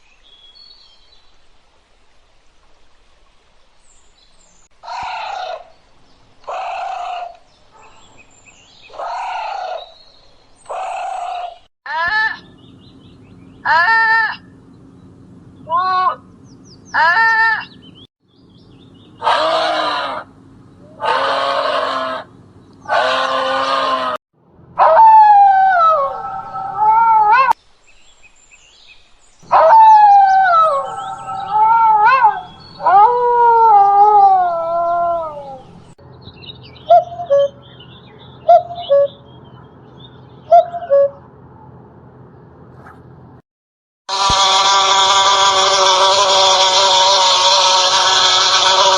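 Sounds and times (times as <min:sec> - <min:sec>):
harsh animal cries: 0:04.8 - 0:05.8, 0:06.4 - 0:07.4, 0:08.9 - 0:10.0, 0:10.7 - 0:12.6, 0:13.6 - 0:14.5, 0:15.7 - 0:16.2, 0:16.9 - 0:17.8, 0:19.2 - 0:24.2, 0:24.8 - 0:27.6, 0:29.5 - 0:35.8, 0:44.1 - 0:48.9
wavering howl-like calls: 0:04.8 - 0:07.9, 0:08.6 - 0:14.6, 0:15.6 - 0:18.1, 0:18.9 - 0:24.2, 0:24.8 - 0:27.6, 0:29.4 - 0:41.8, 0:44.1 - 0:48.9.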